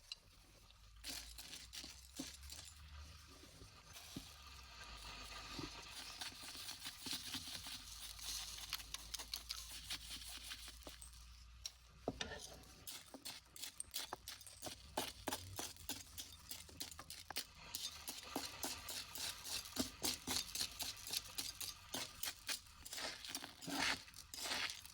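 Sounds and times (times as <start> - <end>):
hands rustling small objects: 0.0 - 12.0, 12.6 - 24.9.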